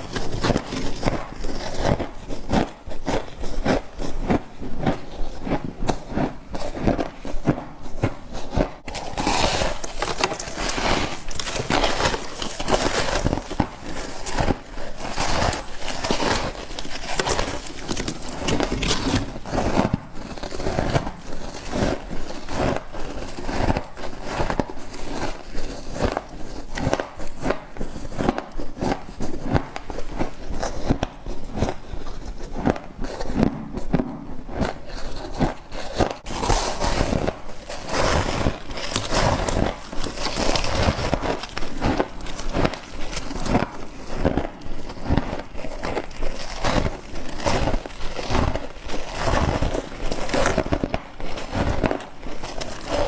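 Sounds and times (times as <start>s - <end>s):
chewing ice crunches: 0.0s - 33.9s, 34.6s - 53.0s.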